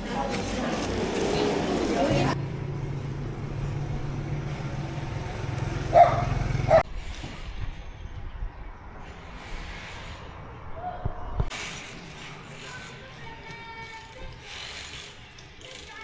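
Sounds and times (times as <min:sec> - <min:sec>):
low motor hum: 0:00.9 - 0:06.8
dog barking: 0:05.8 - 0:06.8.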